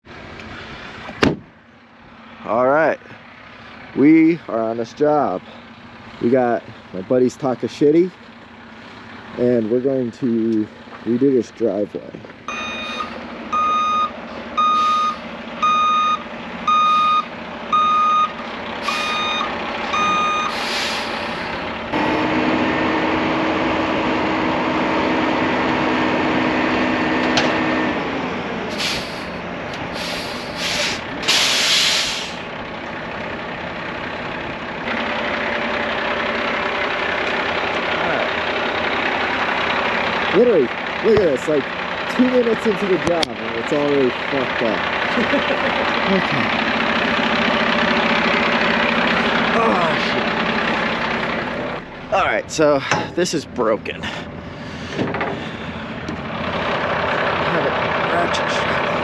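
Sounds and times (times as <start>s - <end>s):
diesel engine running: 0.0s - 59.0s
backup alarm beeping: 12.5s - 20.6s
short hisses: 20.5s - 21.5s, 28.7s - 29.4s, 30.0s - 32.4s.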